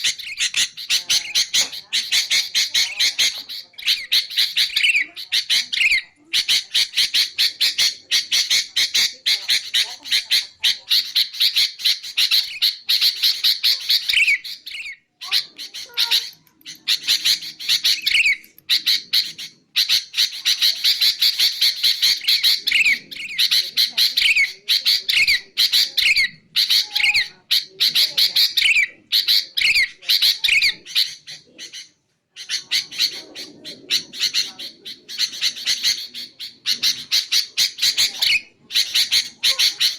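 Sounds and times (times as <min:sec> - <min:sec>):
bulbul harsh chattering calls: 0:00.0 - 0:39.9.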